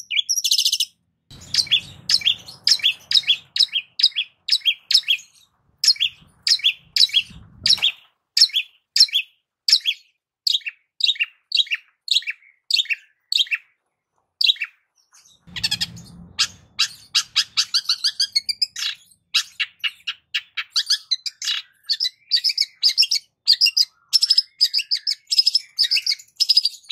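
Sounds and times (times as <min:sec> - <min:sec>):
shrike singing: 0:01.3 - 0:09.2.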